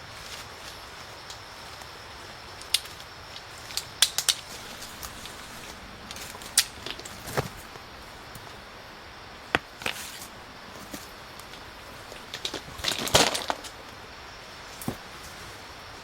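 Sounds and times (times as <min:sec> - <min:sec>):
steady hiss: 0:00.0 - 0:16.0
sharp cracks: 0:03.7 - 0:14.0.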